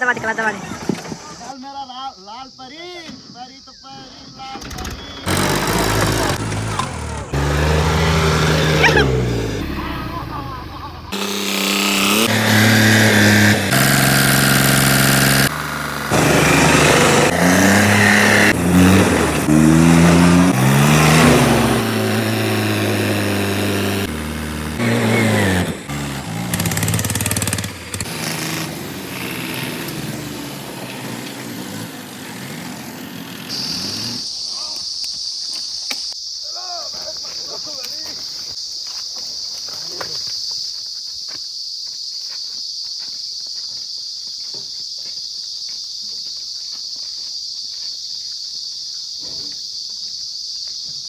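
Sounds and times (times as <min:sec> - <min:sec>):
tractor engines revving: 0:00.0 - 0:01.5, 0:04.5 - 0:34.8
high insect chirping: 0:00.0 - 0:05.3, 0:33.5 - 0:51.0.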